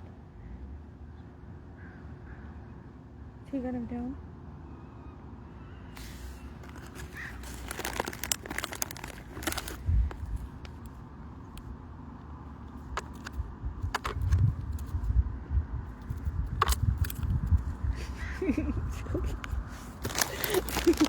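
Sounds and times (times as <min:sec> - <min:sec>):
phone handling rumble: 0:06.0 - 0:11.7, 0:12.6 - 0:15.1, 0:15.9 - 0:18.1, 0:19.1 - 0:21.0.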